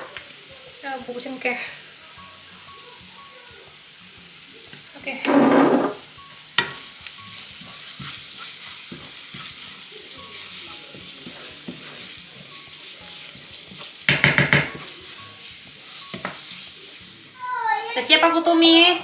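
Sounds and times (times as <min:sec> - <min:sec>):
paste sizzling in hot oil: 0:00.0 - 0:19.0
spatula scraping pan: 0:05.1 - 0:17.1.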